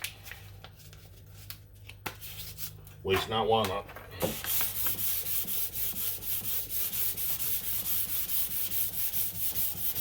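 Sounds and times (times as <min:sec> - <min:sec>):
sandpaper rubbing on car panel: 0:04.3 - 0:10.0.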